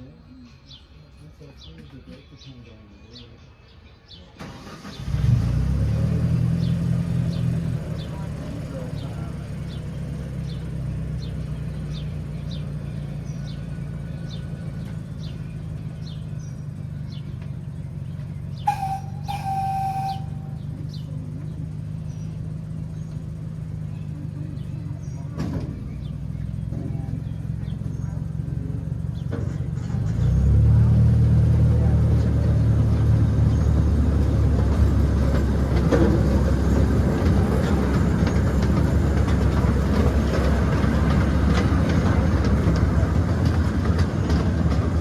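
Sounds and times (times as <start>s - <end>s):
miniature train humming: 11.5s - 30.2s, 31.8s - 45.0s
faint bird chirps: 18.5s - 21.1s
miniature train engine running: 18.7s - 21.9s.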